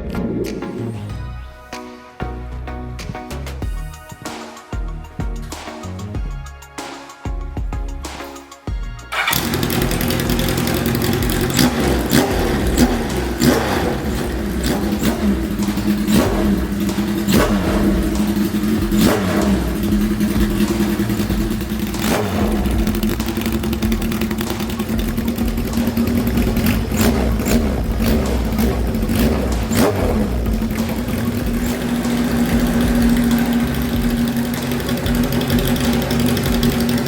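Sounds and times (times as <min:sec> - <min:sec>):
loud motorcycle engine idling: 0:09.1 - 0:37.0
motorcycle engine starting: 0:09.1 - 0:37.0.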